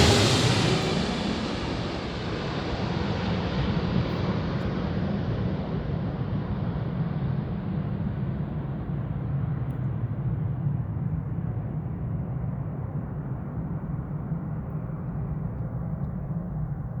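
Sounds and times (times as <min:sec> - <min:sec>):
jet engines rumbling: 0:00.0 - 0:11.8.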